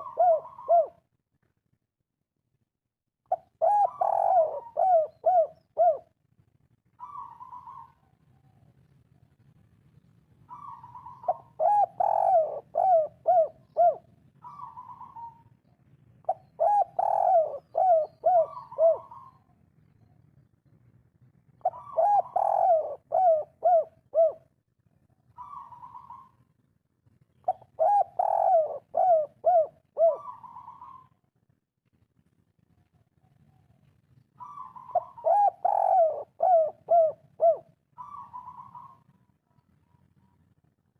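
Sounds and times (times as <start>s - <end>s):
dove cooing: 0.0s - 1.1s, 3.3s - 6.2s, 7.0s - 8.7s, 10.5s - 15.5s, 16.2s - 19.5s, 21.6s - 24.5s, 25.3s - 26.4s, 27.4s - 31.2s, 34.4s - 40.4s.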